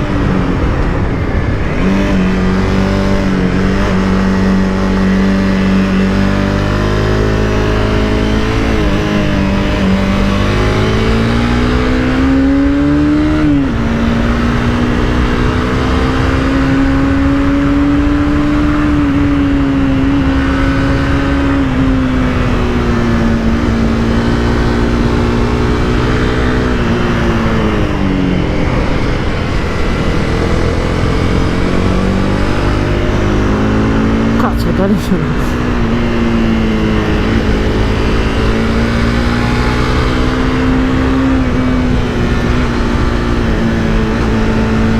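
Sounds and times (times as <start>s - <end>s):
motorcycle engine revving: 0.0s - 44.9s
wind rush: 0.0s - 44.9s.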